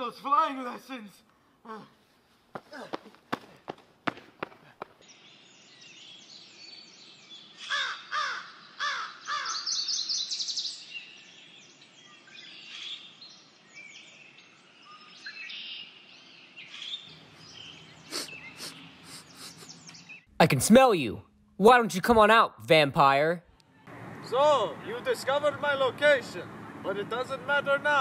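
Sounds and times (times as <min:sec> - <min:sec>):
loud bird calls: 0:02.8 - 0:20.4
small birds chirping: 0:04.4 - 0:20.4.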